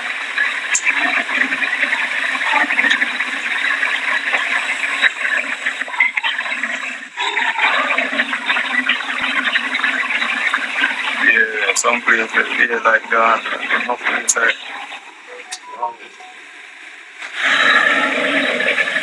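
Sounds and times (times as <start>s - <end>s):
heavy rain rushing: 0.0s - 6.8s.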